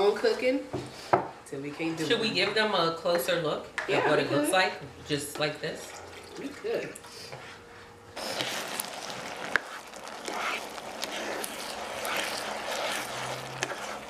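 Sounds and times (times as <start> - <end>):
plastic spoon scraping a pan: 8.2 - 14.0
rice sizzling in a pan: 8.2 - 14.0.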